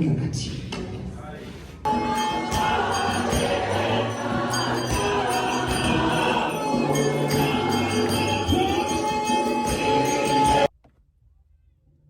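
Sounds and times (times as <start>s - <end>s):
gospel choir singing: 1.9s - 10.7s
percussion beat: 1.9s - 10.7s.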